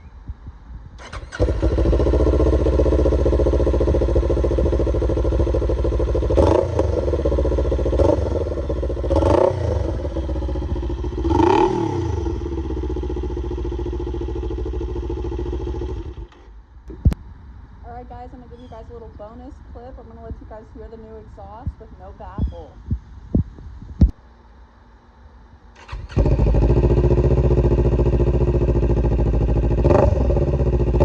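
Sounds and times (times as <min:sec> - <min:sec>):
motorcycle engine idling and revving: 0:00.0 - 0:17.2, 0:25.8 - 0:31.0.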